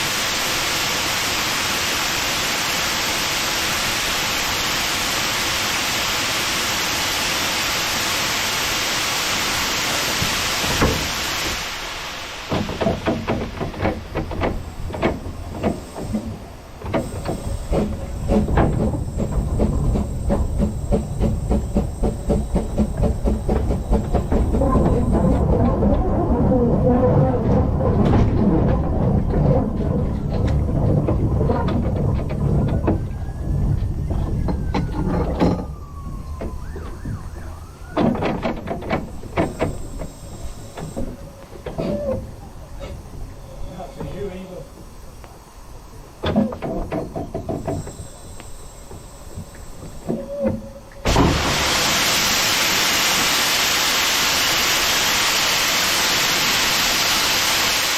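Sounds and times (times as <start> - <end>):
steam hissing: 0.0 - 25.7, 29.2 - 57.9
steam locomotive chuffing: 0.0 - 57.9
train rumbling: 0.0 - 57.9
wheels and couplings clanking: 12.5 - 51.2.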